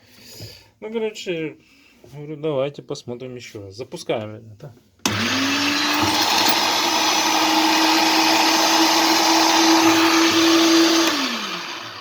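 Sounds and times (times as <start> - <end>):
electric meat grinder whining: 5.1 - 12.0.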